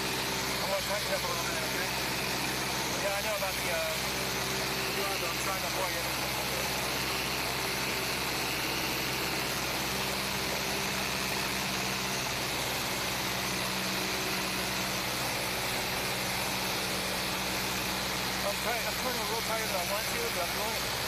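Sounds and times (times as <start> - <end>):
plane engine and propeller drone: 0.0 - 21.0.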